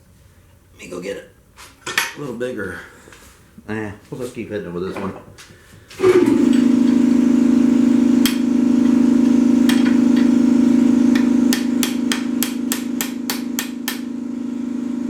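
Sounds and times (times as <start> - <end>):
low machine hum: 5.9 - 15.0
hammer striking steel: 11.1 - 14.1.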